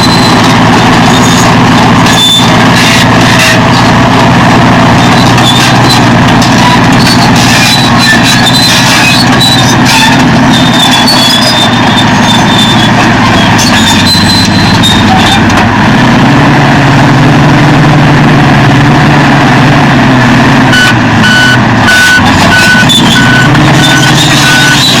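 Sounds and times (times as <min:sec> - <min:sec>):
bulldozer diesel engine: 0:00.0 - 0:25.0
reversing alarm beeping: 0:20.8 - 0:25.0.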